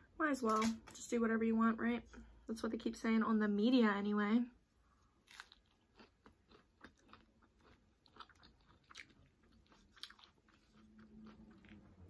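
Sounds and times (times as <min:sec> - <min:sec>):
person chewing crunchy chips: 0:05.2 - 0:12.0.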